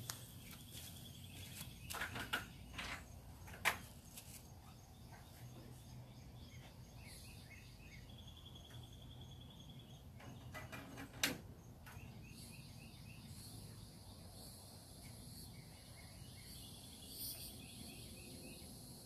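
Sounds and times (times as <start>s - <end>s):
faint bird chirps: 11.8s - 18.8s
high insect trill: 13.3s - 19.0s.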